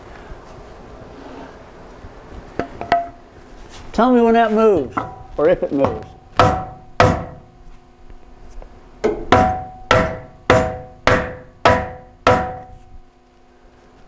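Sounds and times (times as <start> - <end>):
hammer tapping on steel pipe: 2.6 - 3.2, 5.8 - 7.4, 9.0 - 12.7.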